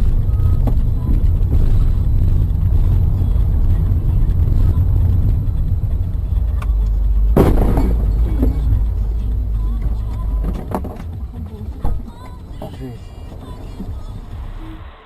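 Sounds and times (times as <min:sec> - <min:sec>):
car driving rumble: 0:00.0 - 0:15.0
sudden loud bang: 0:07.4 - 0:08.9.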